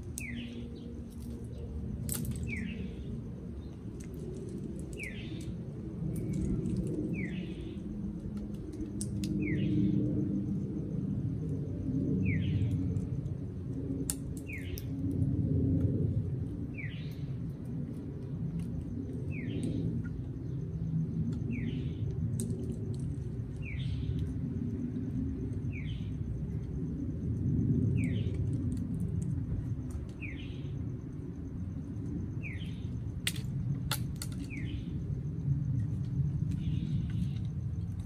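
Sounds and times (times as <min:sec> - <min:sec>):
low outdoor rumble: 0:00.0 - 0:38.0
shells cracking in parrot's beak: 0:08.3 - 0:09.5, 0:14.0 - 0:14.9, 0:33.2 - 0:34.6.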